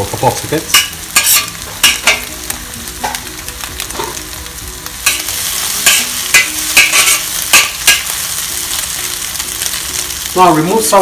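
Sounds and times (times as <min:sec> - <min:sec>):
eggs sizzling in oil: 0:00.0 - 0:11.0
metal spatula scraping wok: 0:00.7 - 0:02.3, 0:05.0 - 0:08.4.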